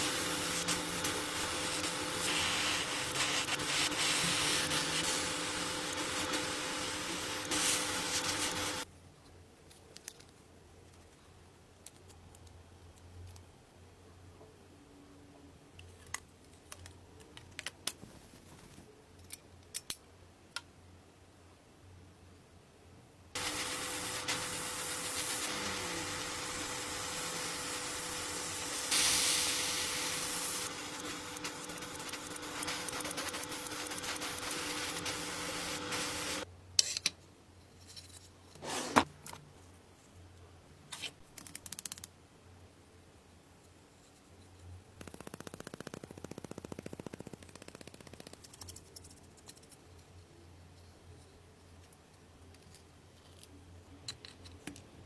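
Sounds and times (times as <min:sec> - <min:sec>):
power tool running: 0:00.0 - 0:08.8, 0:23.4 - 0:36.4.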